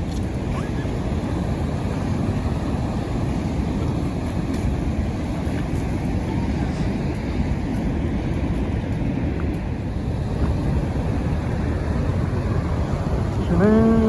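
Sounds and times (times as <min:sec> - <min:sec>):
wind buffeting microphone: 0:00.0 - 0:14.0
waterfall rushing: 0:10.0 - 0:14.0.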